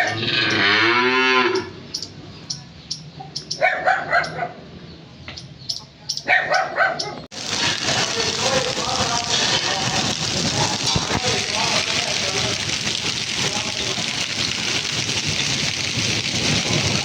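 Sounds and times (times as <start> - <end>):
cattle mooing: 0.0 - 1.8
dog barking: 3.2 - 4.6, 6.2 - 7.3
heavy rain: 7.3 - 17.0.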